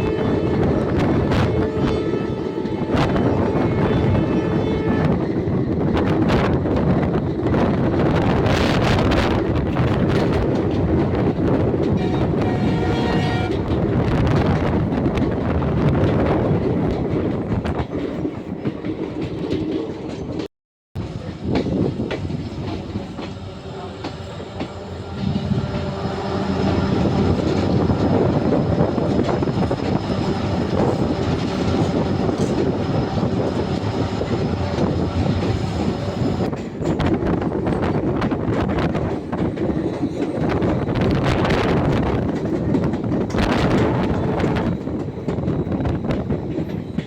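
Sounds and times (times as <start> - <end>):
train rumble: 0.0 - 47.0.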